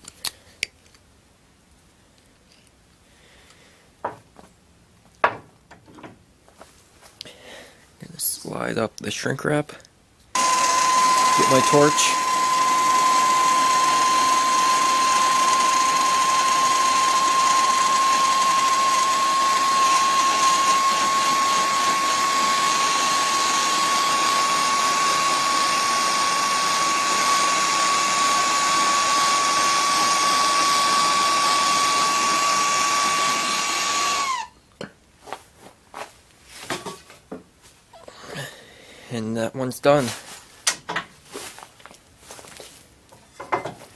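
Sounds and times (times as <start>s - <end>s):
heat torch hissing with whine: 10.4s - 34.5s.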